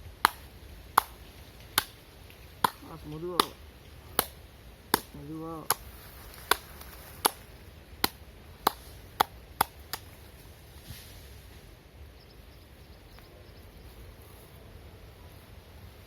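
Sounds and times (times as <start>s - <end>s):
hands slapping body in massage: 6.4s - 10.2s.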